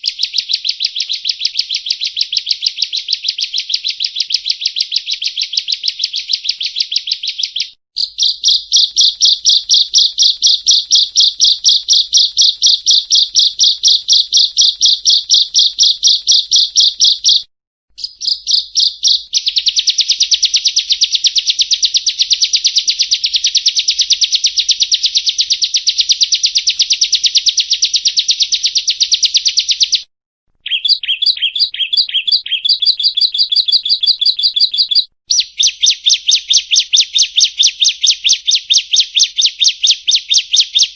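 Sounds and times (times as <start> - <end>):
bird trilling high notes: 6.6 - 17.4.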